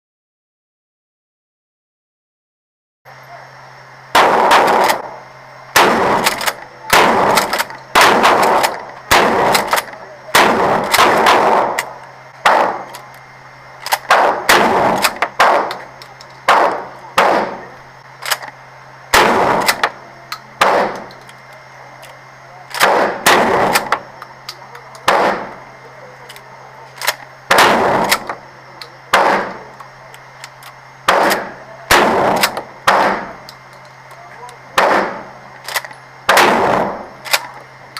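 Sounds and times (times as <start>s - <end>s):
shotgun shots: 4.1s - 13.0s, 13.8s - 18.5s, 19.1s - 20.0s, 20.6s - 21.1s, 22.7s - 24.1s, 25.0s - 25.6s, 27.0s - 28.4s, 29.1s - 29.7s, 30.6s - 33.4s, 34.7s - 37.6s.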